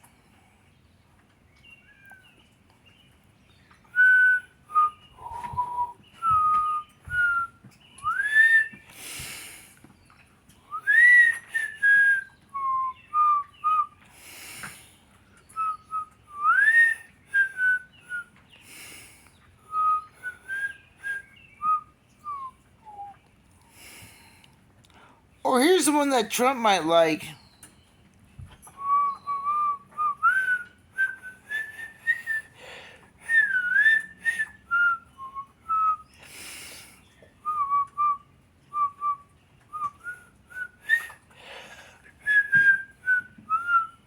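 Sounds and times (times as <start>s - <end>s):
woman whistling a tune: 3.9s - 8.9s, 10.7s - 14.0s, 15.5s - 18.3s, 19.6s - 23.2s, 28.8s - 32.6s, 33.2s - 36.1s, 37.4s - 41.2s, 42.2s - 44.0s.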